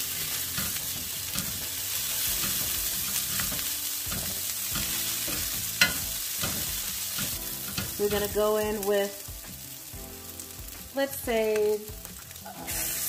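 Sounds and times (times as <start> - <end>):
food sizzling in a pan: 0.0 - 13.0
tongs scraping and clicking on pan: 0.1 - 8.4.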